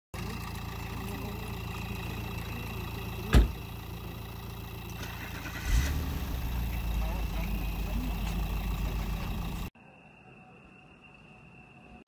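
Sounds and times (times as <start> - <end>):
sharp thump: 3.3 - 3.6.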